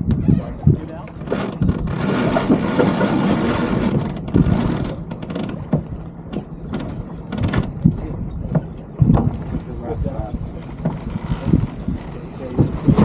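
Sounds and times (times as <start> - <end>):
deck winch ratcheting: 1.1 - 7.8, 10.6 - 12.3.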